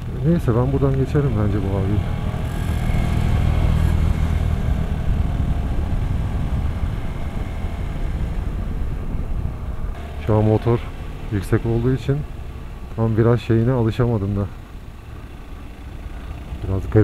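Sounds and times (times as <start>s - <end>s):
motorcycle engine under throttle: 0.0s - 17.0s.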